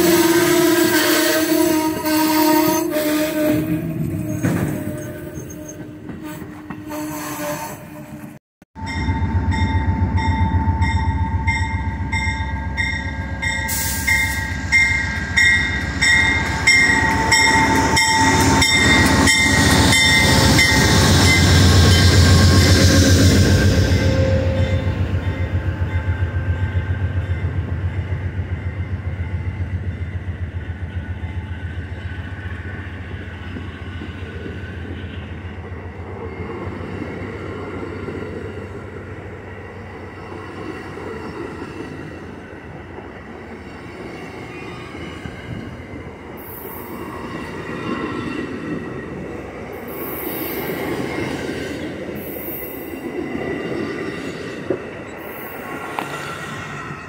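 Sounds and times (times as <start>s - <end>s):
railcars rolling on rails: 0.0s - 57.0s
high-pitched wheel squeals: 1.9s - 7.9s
locomotive engine drone: 8.8s - 53.8s.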